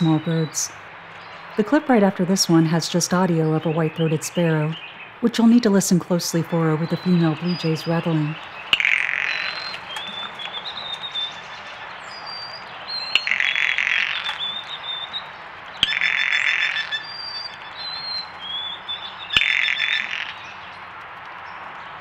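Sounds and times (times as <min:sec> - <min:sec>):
blue jay rattle call: 0:05.9 - 0:20.9
sparrow high whistled notes: 0:06.8 - 0:15.2, 0:15.8 - 0:20.5.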